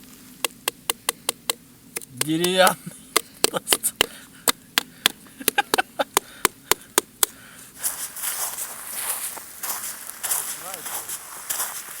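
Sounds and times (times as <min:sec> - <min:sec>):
blade knocking frozen mushroom: 0:00.4 - 0:07.4
rustling: 0:07.7 - 0:12.0.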